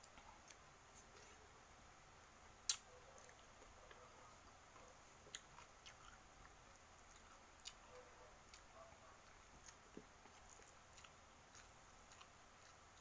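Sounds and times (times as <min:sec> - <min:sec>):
person chewing quietly: 0:00.0 - 0:01.6, 0:02.6 - 0:13.0.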